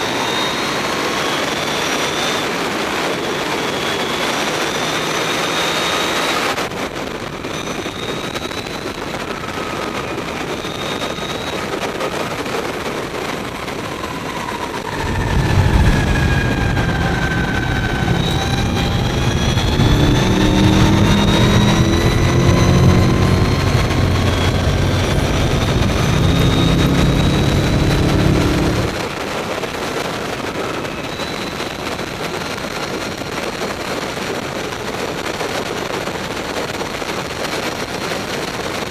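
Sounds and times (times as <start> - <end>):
wind rush: 13.8 - 32.1
electric motorcycle motor whining: 14.8 - 29.1
low rumble: 14.9 - 29.2.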